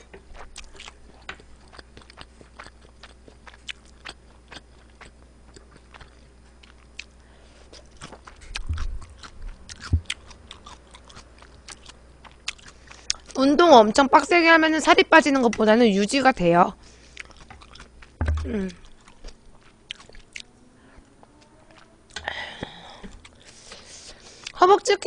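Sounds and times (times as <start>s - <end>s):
chewing mouth clicks: 0.4s - 13.4s, 17.1s - 20.5s
dull low thumps: 8.6s - 10.2s, 18.2s - 18.9s.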